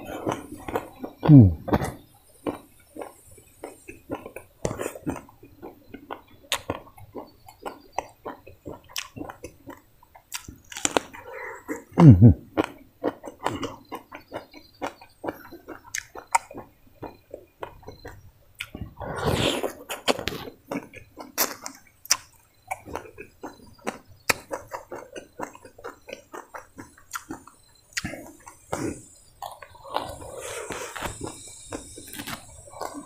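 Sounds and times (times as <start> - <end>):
chewing crunchy rice: 0.0 - 33.0
mouth clicks: 0.0 - 33.0
loud mouth noise: 1.2 - 2.0, 11.9 - 12.4, 18.7 - 19.8.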